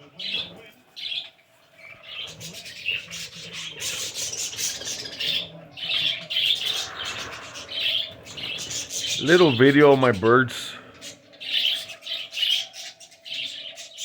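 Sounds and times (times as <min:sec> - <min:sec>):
birds rustling while bathing: 0:00.0 - 0:10.1
pet birds chirping and chattering: 0:00.0 - 0:14.0.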